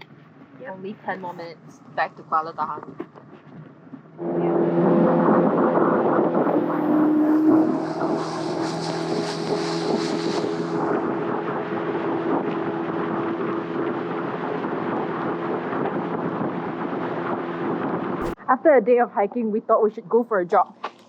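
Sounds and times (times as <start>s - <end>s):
boat motor running: 0.0s - 18.4s
rushing water wash: 4.2s - 18.4s.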